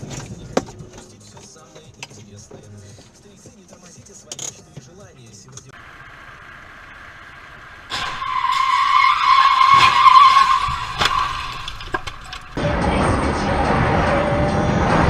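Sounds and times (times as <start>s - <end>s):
car tyres screeching: 5.8s - 14.2s
loud road noise: 5.8s - 15.0s.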